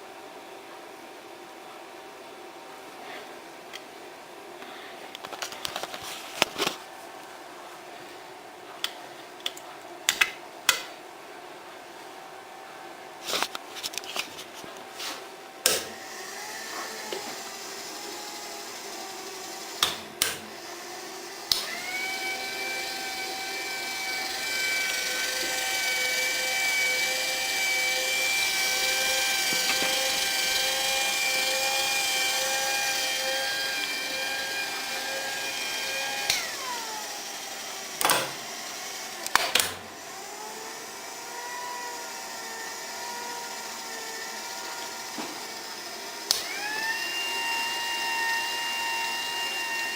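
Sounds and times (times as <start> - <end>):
milling machine motor whine: 15.9 - 49.9.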